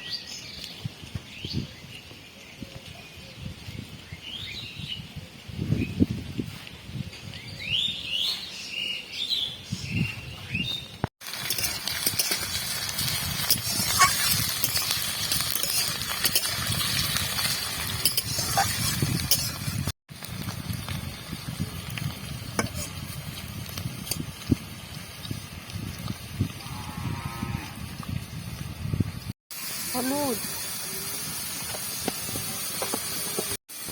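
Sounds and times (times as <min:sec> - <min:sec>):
food frying in hot oil: 0:11.2 - 0:26.7, 0:27.7 - 0:33.9.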